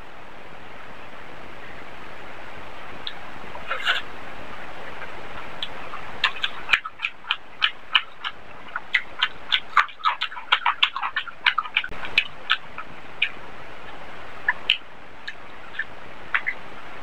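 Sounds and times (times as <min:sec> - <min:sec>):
steady hiss: 0:00.0 - 0:17.0
wet chewing and lip smacking: 0:05.4 - 0:16.6.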